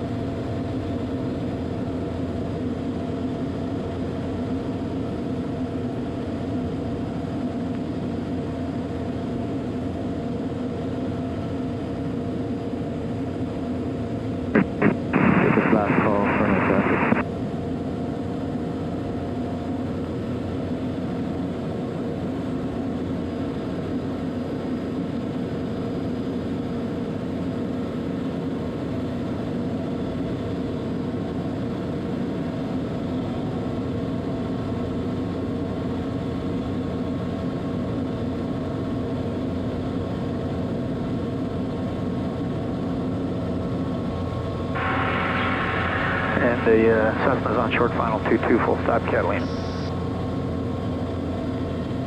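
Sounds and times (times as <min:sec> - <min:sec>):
turboprop engine drone: 0:00.0 - 0:52.0
rushing background noise: 0:14.6 - 0:17.2, 0:44.7 - 0:49.9.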